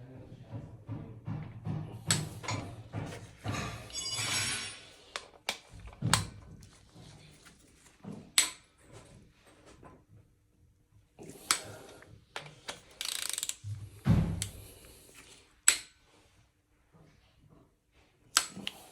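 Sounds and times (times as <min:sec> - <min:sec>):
metal tools knocking and clanking: 0:01.7 - 0:05.3
metal scraping: 0:03.1 - 0:05.1.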